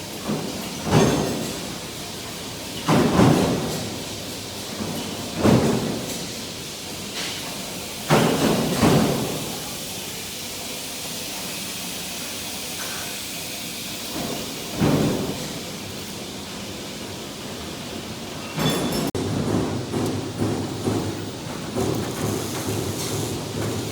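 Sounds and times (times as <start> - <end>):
machinery hiss: 1.4 - 18.3.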